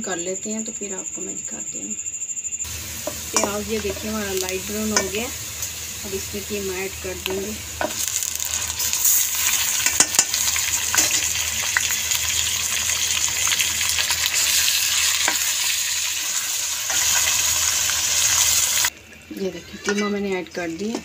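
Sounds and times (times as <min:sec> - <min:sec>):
meat sizzling in hot oil: 0:02.7 - 0:18.9.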